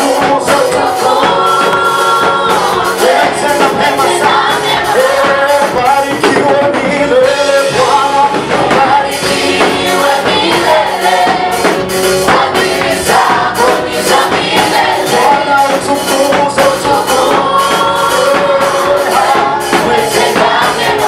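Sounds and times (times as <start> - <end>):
choir singing gospel song: 0.0 - 21.0
instrumental backing with beat: 0.0 - 21.0.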